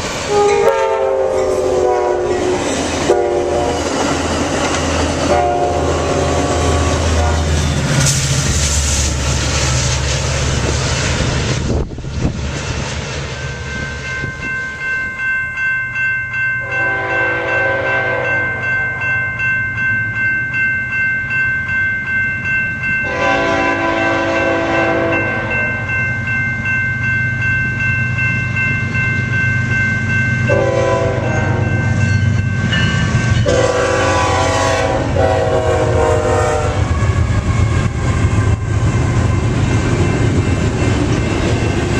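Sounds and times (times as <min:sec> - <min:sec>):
crossing bells ringing: 0:00.0 - 0:08.4, 0:13.0 - 0:41.9
train rumbling on tracks: 0:00.0 - 0:41.9
train horn blasts: 0:00.3 - 0:03.9, 0:05.3 - 0:07.7, 0:16.6 - 0:18.8, 0:23.0 - 0:25.8, 0:30.5 - 0:31.8, 0:33.4 - 0:38.0.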